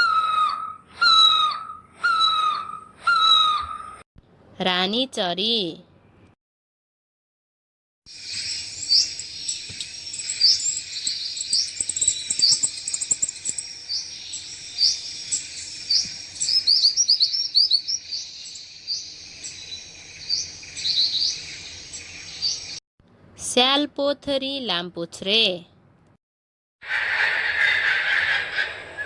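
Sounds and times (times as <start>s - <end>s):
high downward-slurred bird calls: 0.0s - 4.0s, 8.1s - 22.8s
high hiss of birds or insects: 8.1s - 22.8s.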